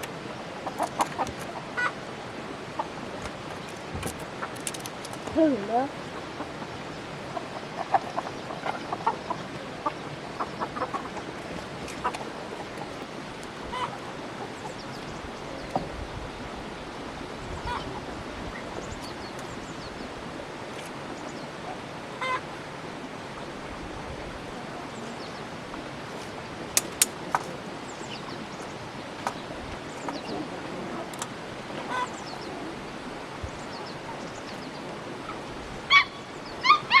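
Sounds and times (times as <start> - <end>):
poultry clucking: 0.0 - 2.0, 6.2 - 14.9
steady background hiss: 0.0 - 37.0
sharp clicks: 3.2 - 5.4, 26.8 - 27.5.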